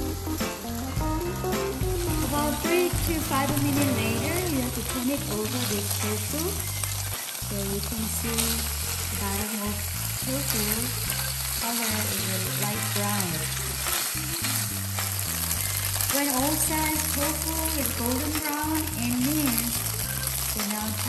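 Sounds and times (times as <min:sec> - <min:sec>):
tofu sizzling in hot oil: 0:00.0 - 0:21.0.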